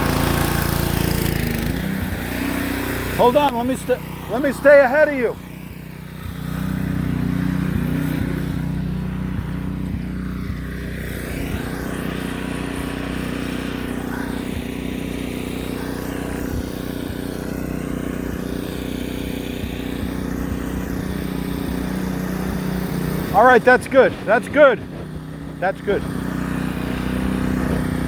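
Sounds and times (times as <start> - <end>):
pressure washer engine drone: 0.0 - 28.0
water spray hissing: 0.0 - 28.0.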